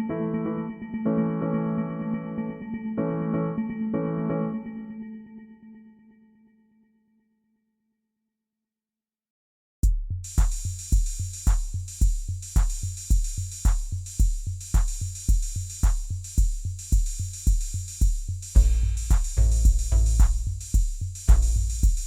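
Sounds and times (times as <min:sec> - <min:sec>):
crisp hi-hat ticks: 0:09.8 - 0:22.0
deep kick drum: 0:09.8 - 0:22.0
drum machine beat: 0:09.8 - 0:22.0.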